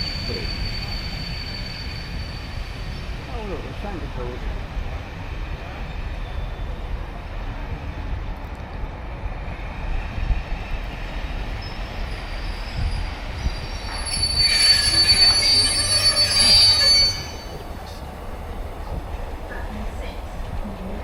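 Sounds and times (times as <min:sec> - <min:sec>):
high wheel squeal: 0:00.0 - 0:03.2, 0:11.5 - 0:18.2
train rumbling over rails: 0:00.0 - 0:21.0.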